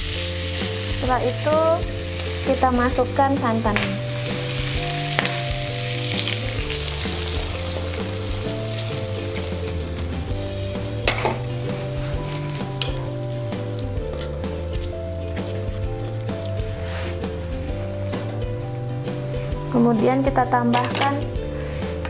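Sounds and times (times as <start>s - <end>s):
coconut milk sizzling in a wok: 0.0s - 19.8s.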